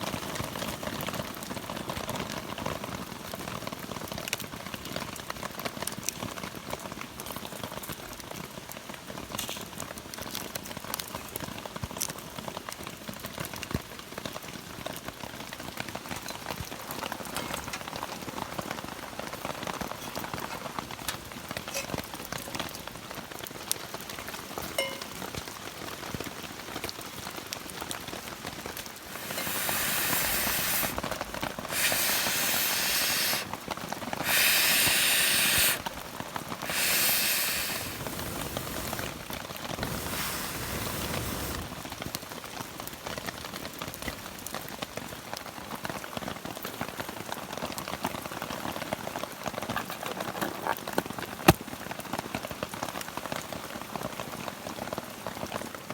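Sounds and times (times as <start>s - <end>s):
steady rain: 0.0s - 55.9s
loud hissing bursts: 29.0s - 41.9s.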